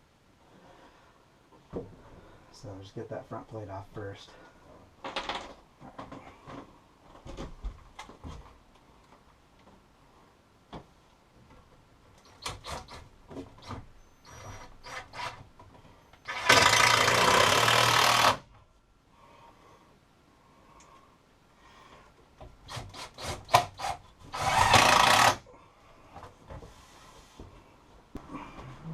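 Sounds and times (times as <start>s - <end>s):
handheld power tool motor running: 16.3s - 18.4s, 22.7s - 25.4s.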